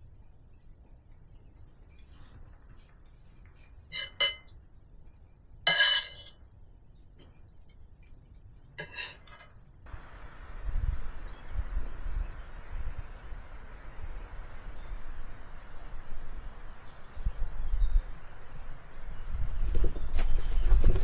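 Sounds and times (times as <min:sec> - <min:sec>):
sharp clinks of hard objects: 0:05.7 - 0:06.4.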